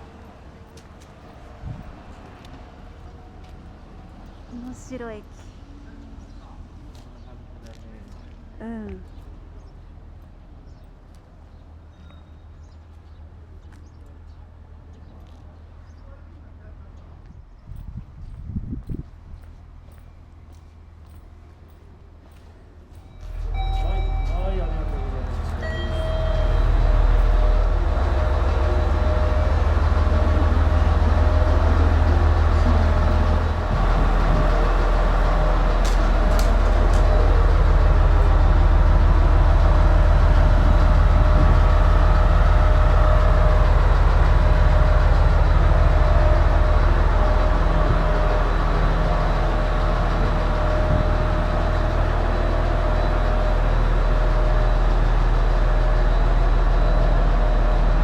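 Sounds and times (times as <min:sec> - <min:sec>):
train rumbling: 0:00.0 - 0:58.0
thin steady whine: 0:23.1 - 0:58.0.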